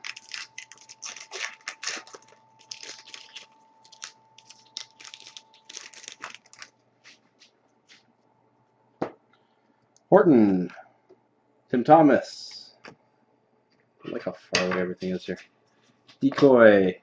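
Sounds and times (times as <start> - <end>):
card wrappers crinkling: 0.0 - 7.3.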